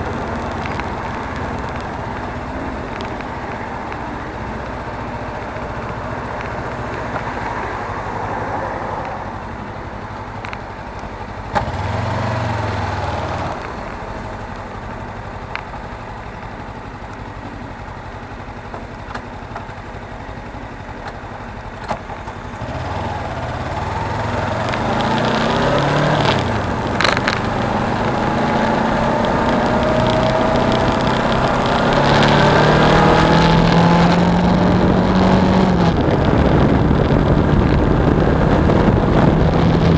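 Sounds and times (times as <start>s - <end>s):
motorcycle engine running: 0.0s - 39.9s
wind rush: 23.3s - 39.9s.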